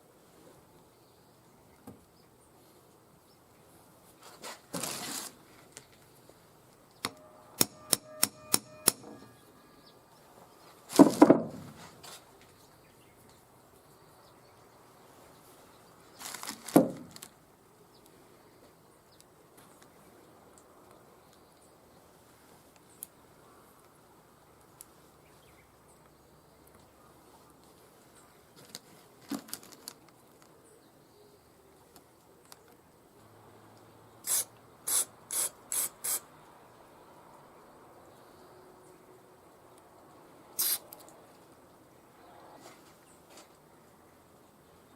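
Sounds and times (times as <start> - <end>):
tools clicking and knocking: 7.0 - 9.3
short hissing bursts: 34.2 - 36.3, 40.6 - 40.9.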